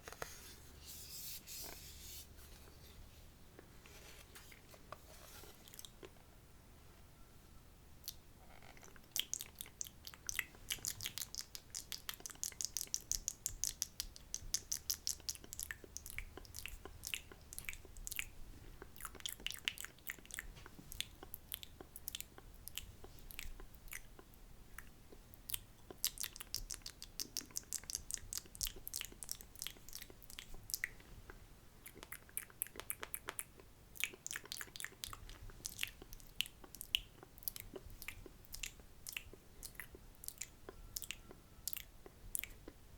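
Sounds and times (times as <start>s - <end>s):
wet mouth clicks and smacks: 8.8s - 42.8s.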